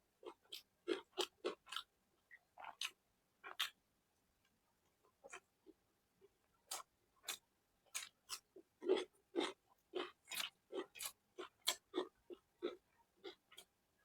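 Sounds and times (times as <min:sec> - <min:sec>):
chewing with wet mouth smacks: 0:06.7 - 0:13.7.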